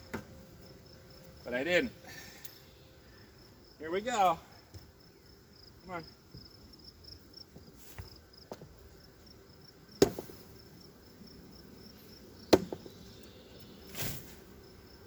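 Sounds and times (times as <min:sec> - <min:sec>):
wooden hive parts knocking: 0:12.5 - 0:13.0.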